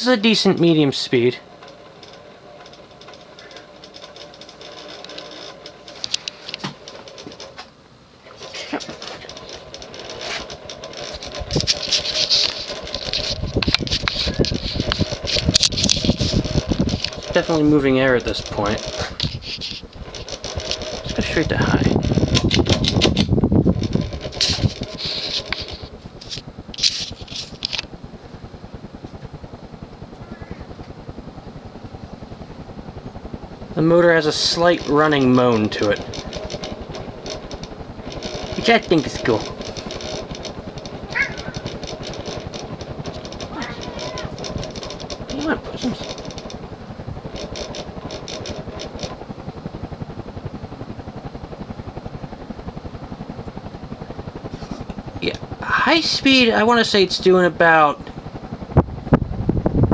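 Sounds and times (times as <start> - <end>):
pull chain rattling clicks: 0.0 - 28.0, 33.6 - 50.0, 54.8 - 58.2
fan blades pulsing whoosh: 0.0 - 59.9
fan motor moan: 0.0 - 59.9.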